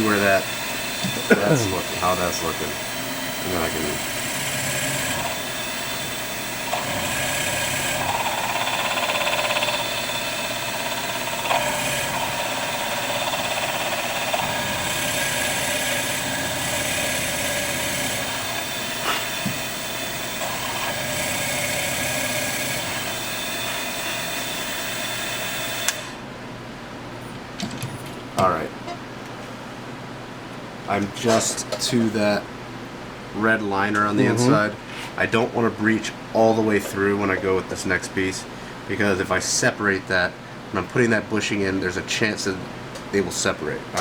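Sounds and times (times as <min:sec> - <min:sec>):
drill bit cutting: 0:00.0 - 0:26.2
milling machine spindle running: 0:00.0 - 0:26.2.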